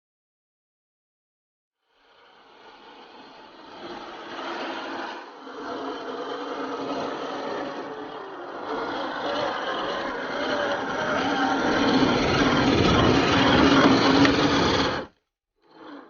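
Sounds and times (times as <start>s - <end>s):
toy car motor whirring: 1.9s - 16.0s
tyres scraping over rough ground: 2.6s - 15.2s.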